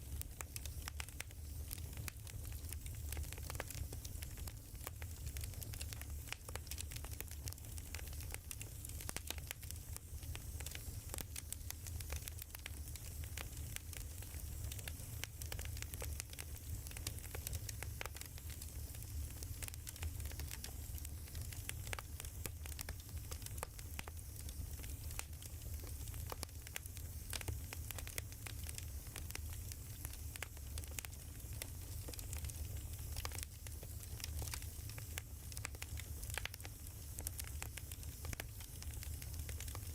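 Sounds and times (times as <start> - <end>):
firewood crackling and popping: 0.0 - 39.9
low rumble of fire: 0.0 - 39.9.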